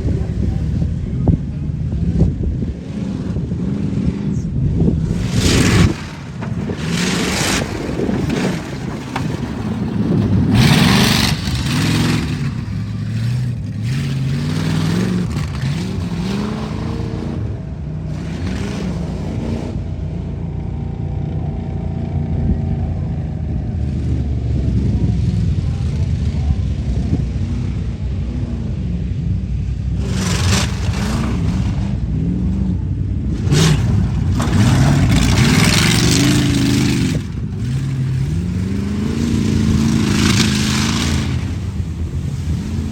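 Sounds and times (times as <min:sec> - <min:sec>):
truck engine revving: 0:00.0 - 0:42.9
loud rushing bursts: 0:05.0 - 0:13.6.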